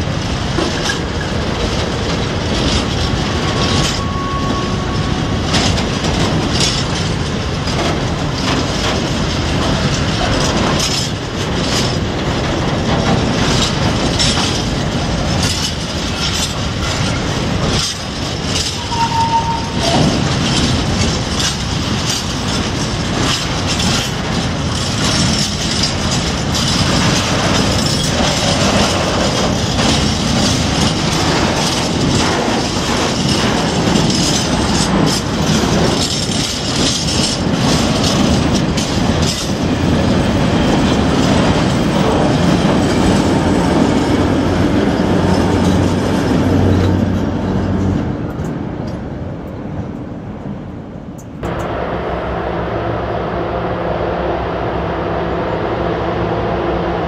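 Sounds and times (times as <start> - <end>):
train wheels clattering: 0.0 - 50.1
short high wheel squeal: 3.8 - 5.1, 18.8 - 20.1.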